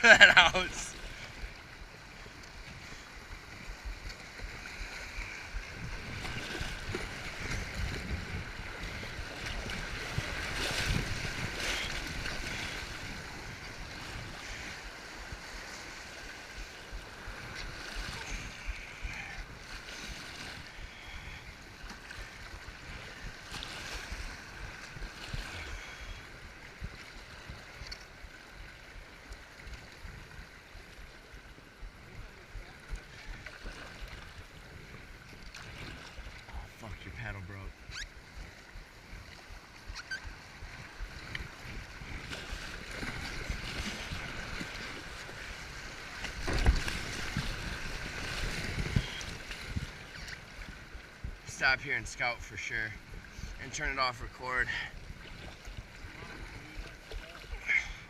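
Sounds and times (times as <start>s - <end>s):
paddle splashes: 0.0s - 58.0s
rushing river water: 0.0s - 58.0s
wind rumble on microphone: 1.9s - 37.0s, 37.7s - 51.5s.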